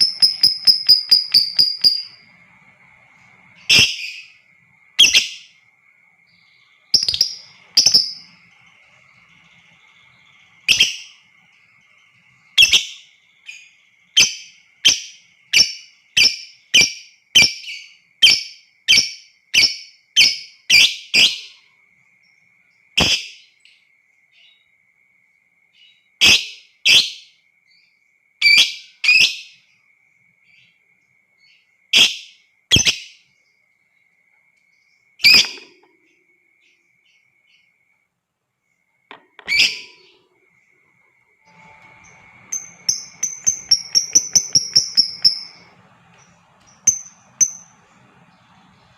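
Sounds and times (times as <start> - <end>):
bird giving shrill calls: 0.0 - 2.3, 39.5 - 40.1, 41.5 - 45.7
faint high tone: 41.4 - 48.9.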